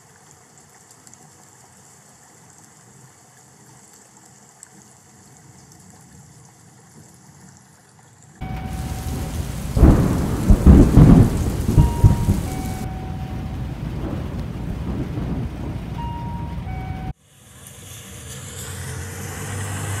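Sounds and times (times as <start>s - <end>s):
loud low rumbling: 8.4s - 17.1s
faint steady hiss: 8.4s - 17.2s
heavy rain: 8.4s - 17.2s.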